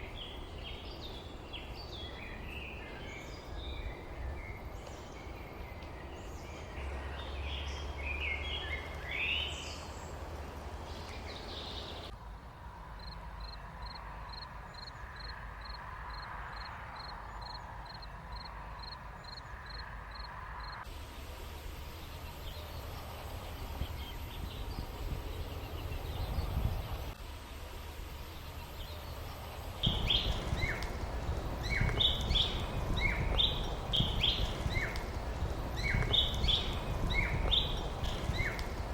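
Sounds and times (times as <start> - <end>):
small birds chirping: 0.0 - 12.1, 21.8 - 27.2, 28.1 - 38.9
low rumble of wind: 0.0 - 38.9.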